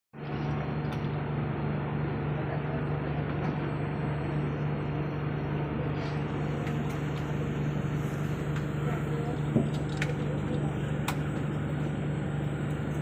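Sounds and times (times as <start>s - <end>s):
constant low hum: 0.2s - 13.0s
train carriage interior rush: 5.5s - 13.0s.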